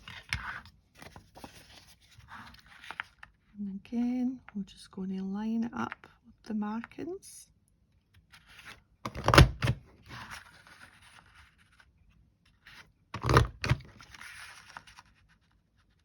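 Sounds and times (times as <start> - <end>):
paper scraping and rustling: 0.0 - 3.4, 10.0 - 11.9, 12.5 - 16.0.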